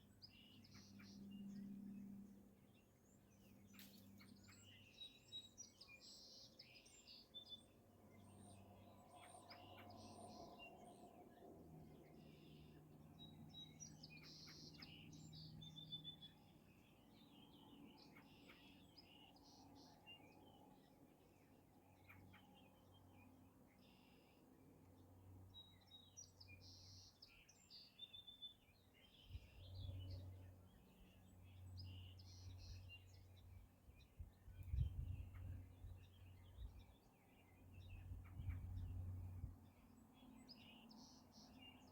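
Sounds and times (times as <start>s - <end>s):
low steady background hum: 0.0s - 41.9s
small birds chirping and trilling: 0.0s - 41.9s.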